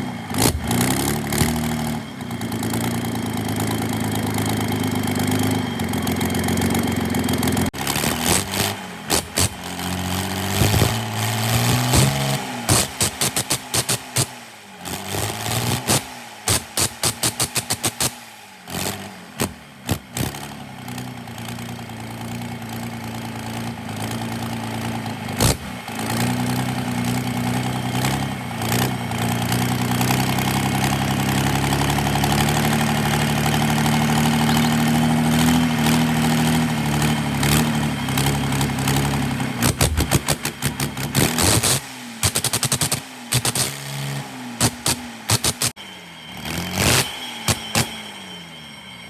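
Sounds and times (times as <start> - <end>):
engine knocks: 0.0 - 14.4, 15.2 - 18.2, 28.7 - 43.8
diesel engine starting and running: 0.0 - 49.0.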